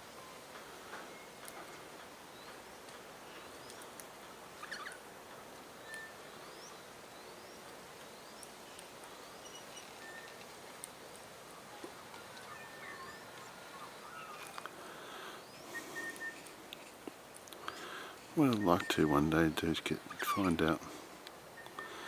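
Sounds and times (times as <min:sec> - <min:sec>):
steady background hiss: 0:00.0 - 0:22.0
faint bird calls: 0:04.6 - 0:05.1, 0:11.5 - 0:16.6.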